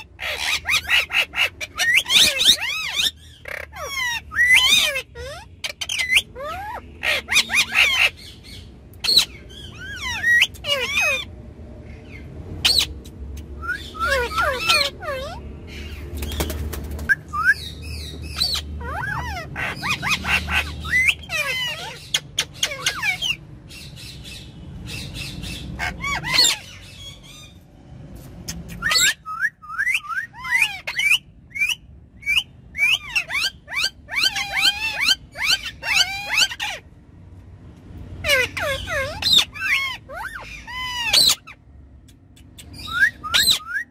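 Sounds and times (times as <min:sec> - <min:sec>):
parrots squawking and chattering: 0:00.0 - 0:43.9.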